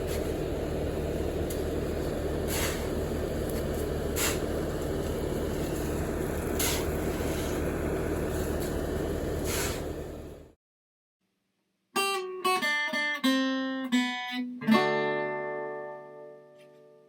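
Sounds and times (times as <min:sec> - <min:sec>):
machine engine running: 0:00.0 - 0:10.6
short hissing bursts: 0:02.4 - 0:10.1.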